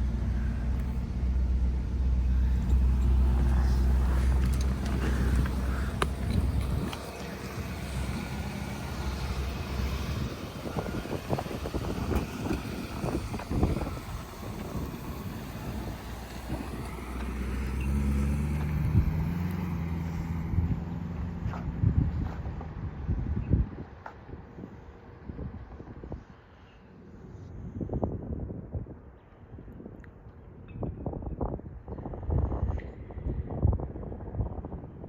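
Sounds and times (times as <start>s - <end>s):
car engine running: 0.0s - 23.3s.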